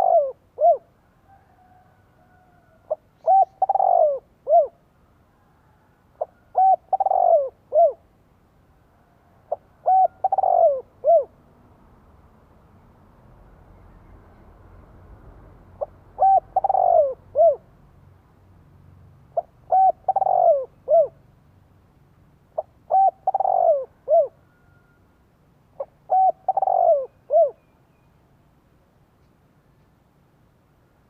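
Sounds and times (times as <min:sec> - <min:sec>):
dove cooing: 0:00.0 - 0:00.9, 0:01.6 - 0:04.8, 0:05.6 - 0:08.0, 0:09.5 - 0:11.4, 0:15.8 - 0:17.6, 0:19.4 - 0:21.2, 0:22.6 - 0:25.0, 0:25.8 - 0:27.6.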